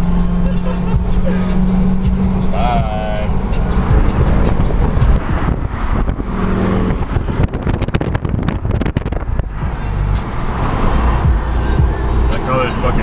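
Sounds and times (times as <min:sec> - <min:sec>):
car engine and exhaust running: 0:00.0 - 0:13.0
sharp exhaust pops: 0:03.8 - 0:10.4.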